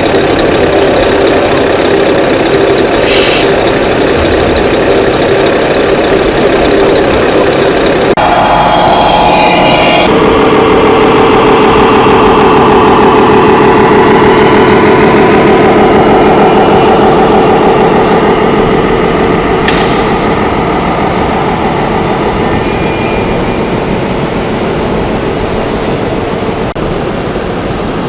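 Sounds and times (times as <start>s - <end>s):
diesel truck engine idling: 0.0s - 9.1s.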